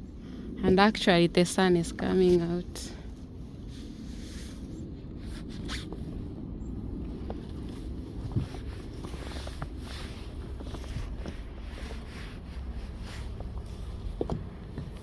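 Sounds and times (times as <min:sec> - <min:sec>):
brush sweeping snow off car: 0:03.6 - 0:04.7, 0:08.5 - 0:13.5.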